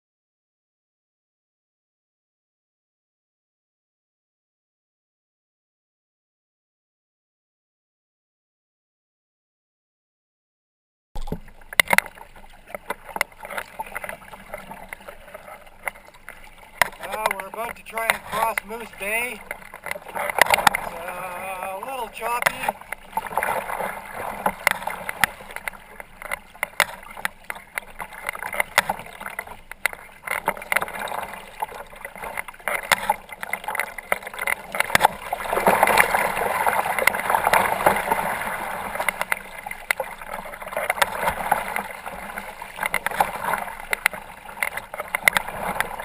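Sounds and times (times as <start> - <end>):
water slapping against kayak hull: 11.2 - 46.0.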